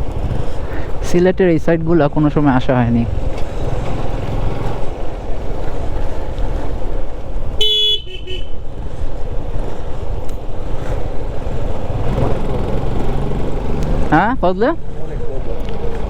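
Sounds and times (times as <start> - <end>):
motorcycle engine and road noise: 0.0 - 16.0
vehicle horn toot: 7.6 - 8.6.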